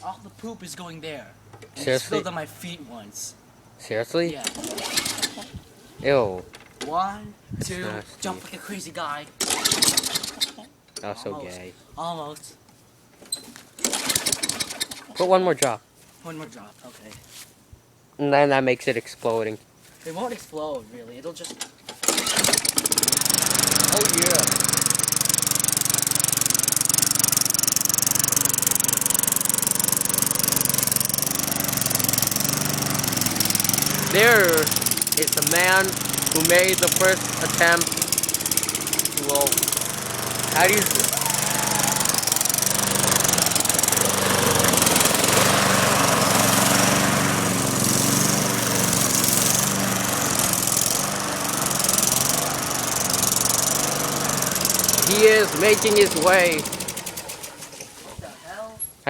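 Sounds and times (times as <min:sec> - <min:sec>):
small lawn mower engine running: 0:04.4 - 0:05.5, 0:09.4 - 0:10.6, 0:13.8 - 0:15.3, 0:21.4 - 0:58.0.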